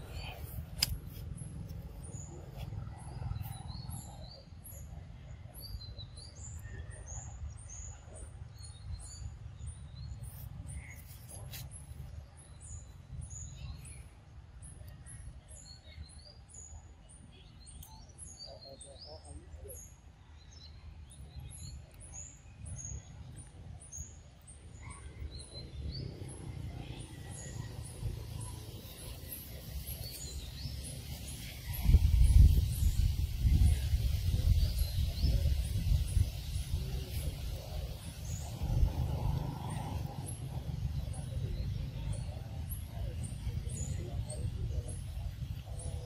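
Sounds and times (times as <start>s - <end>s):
small birds chirping: 0.0s - 46.0s
steady low rumble: 25.8s - 46.0s.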